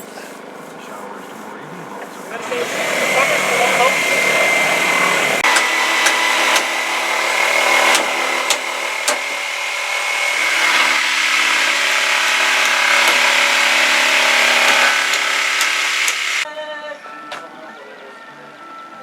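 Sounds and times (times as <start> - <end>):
power saw cutting wood: 1.9 - 16.4
sharp clicks: 5.4 - 9.3.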